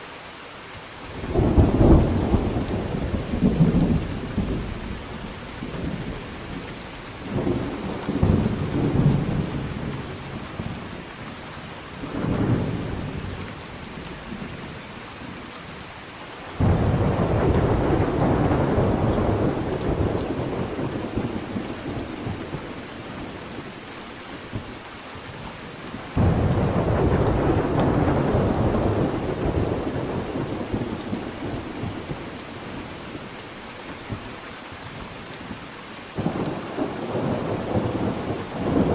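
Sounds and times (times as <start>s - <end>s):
steady rain: 0.0s - 38.9s
rolling thunder: 16.6s - 22.8s, 26.1s - 32.3s.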